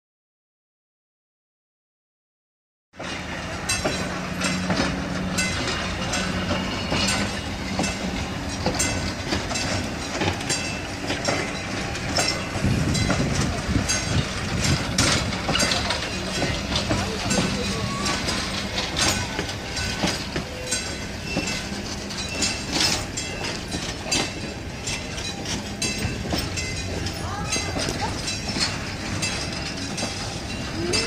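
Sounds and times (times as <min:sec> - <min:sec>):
train wheels clicking over rail joints: 0:03.0 - 0:31.0.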